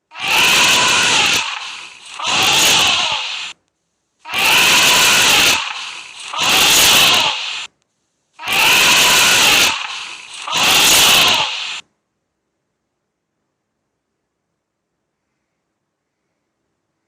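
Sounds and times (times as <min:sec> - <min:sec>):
elephant trumpeting: 0:00.1 - 0:03.6, 0:04.3 - 0:07.7, 0:08.4 - 0:11.8.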